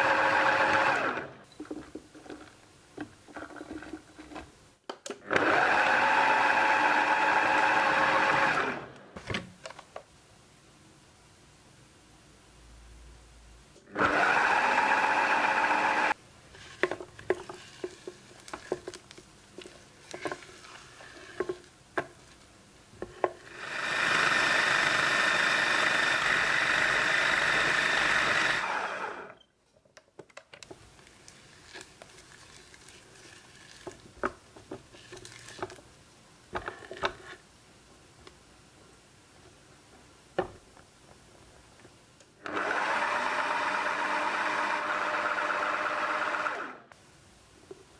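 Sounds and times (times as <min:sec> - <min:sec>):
food processor motor spinning: 0:00.0 - 0:01.4, 0:05.2 - 0:09.0, 0:13.9 - 0:16.2, 0:23.4 - 0:29.4, 0:42.4 - 0:46.9.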